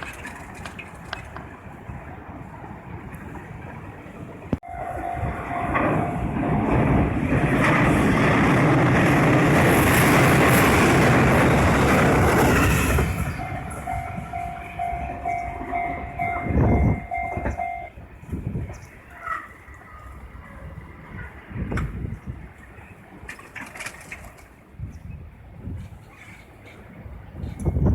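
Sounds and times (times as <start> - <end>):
train rumbling past: 0.0 - 24.4
two-tone crossing warning bell: 4.6 - 18.0.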